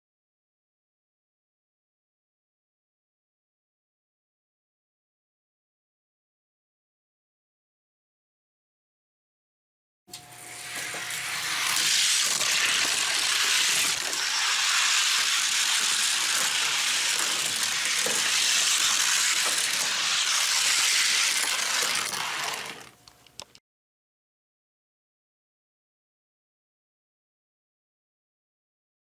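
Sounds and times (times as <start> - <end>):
toy car wheels rolling on track: 10.3 - 23.6.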